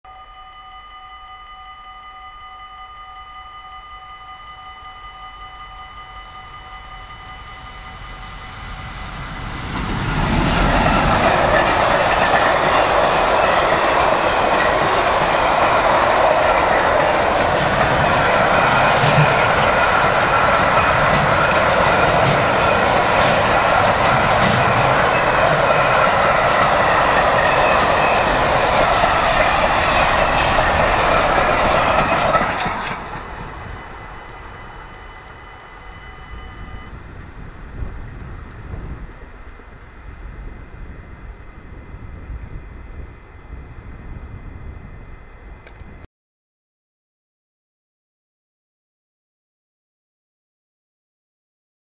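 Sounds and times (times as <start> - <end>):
level crossing warning bell: 0.1 - 9.2, 10.6 - 32.4, 33.1 - 36.9
train wheels rumbling on rail: 6.4 - 46.0.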